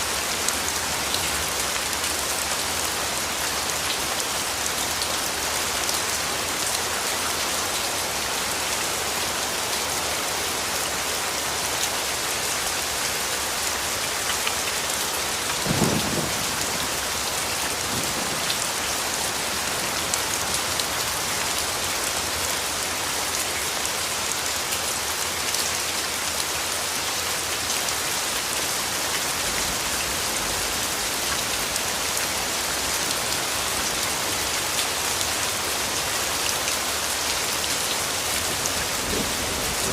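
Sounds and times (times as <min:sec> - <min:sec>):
steady rain falling: 0:00.0 - 0:39.9
low rumble of thunder: 0:15.6 - 0:19.2, 0:38.7 - 0:39.9.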